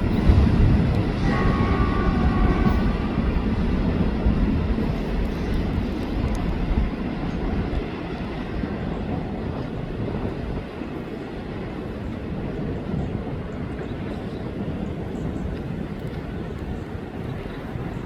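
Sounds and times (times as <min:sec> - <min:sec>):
freight train rumbling on rails: 0:00.0 - 0:18.0.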